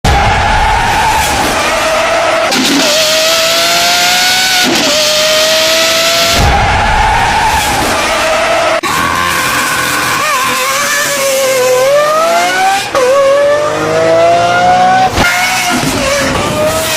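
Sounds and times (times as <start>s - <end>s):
high-revving car engine accelerating: 2.5s - 6.4s, 9.0s - 16.9s.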